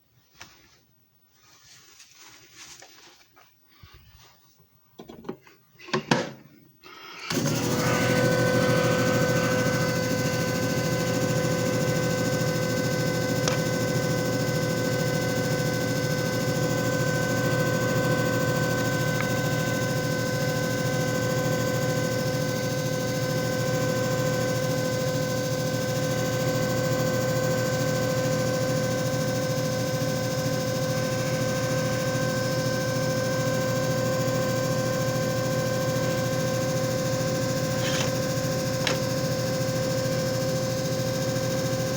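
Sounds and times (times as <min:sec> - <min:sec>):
electric motor hum and whine: 0:07.3 - 0:41.9.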